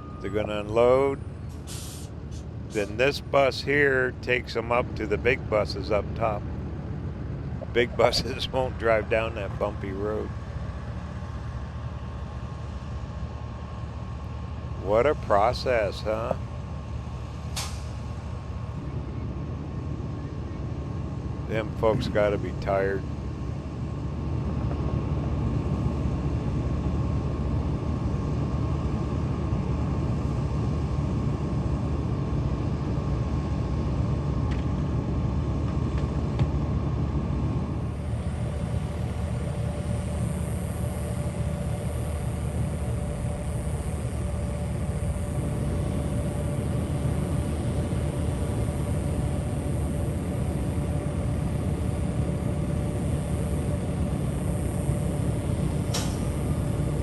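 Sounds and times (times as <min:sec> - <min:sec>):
faint steady tone: 0:00.0 - 0:01.3
vehicle engine idling: 0:00.0 - 0:25.9, 0:34.5 - 0:57.0.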